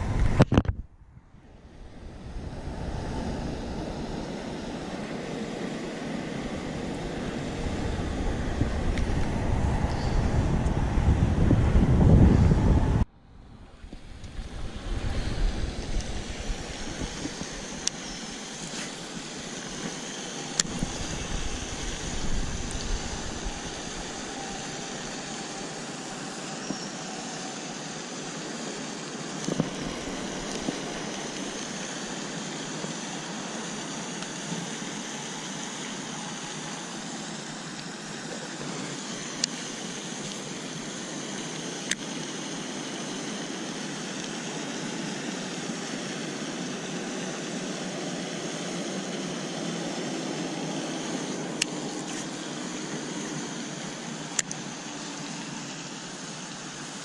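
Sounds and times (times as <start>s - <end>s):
wind rumbling on microphone: 0.0s - 26.1s
motor running: 13.9s - 45.6s.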